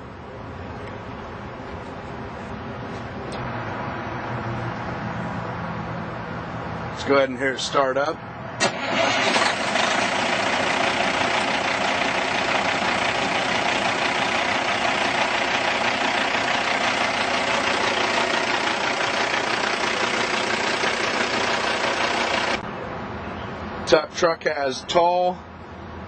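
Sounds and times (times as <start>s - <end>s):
diesel truck engine idling: 8.6s - 22.6s.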